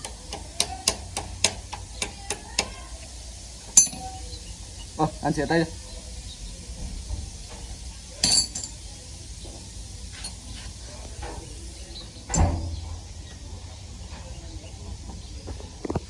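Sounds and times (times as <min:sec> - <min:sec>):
metal tools clinking: 0:03.8 - 0:04.2, 0:08.2 - 0:08.8, 0:10.2 - 0:10.7, 0:12.3 - 0:12.8
heavy metal knock: 0:12.3 - 0:13.2.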